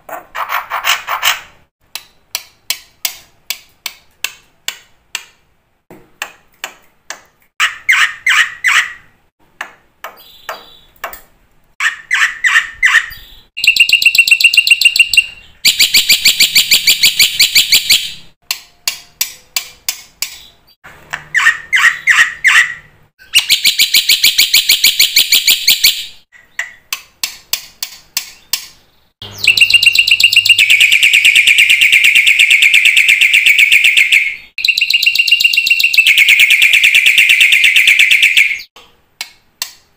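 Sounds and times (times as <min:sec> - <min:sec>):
harsh rattling bird trills: 0:29.3 - 0:33.8.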